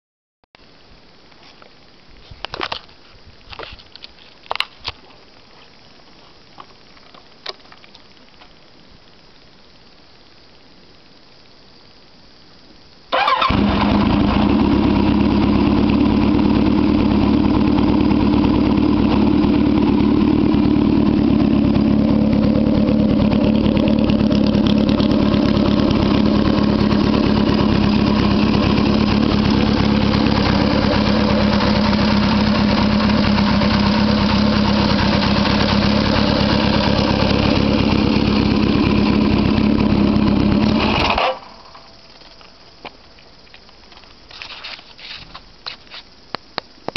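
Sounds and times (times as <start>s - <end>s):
motorcycle engine idling loudly: 13.4s - 41.2s.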